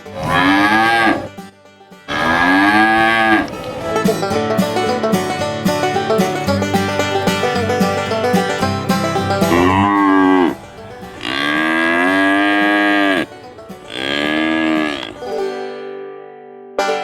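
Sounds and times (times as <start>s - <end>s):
cattle mooing: 0.0s - 1.4s, 2.1s - 4.2s, 9.2s - 15.3s
banjo music: 0.0s - 17.0s.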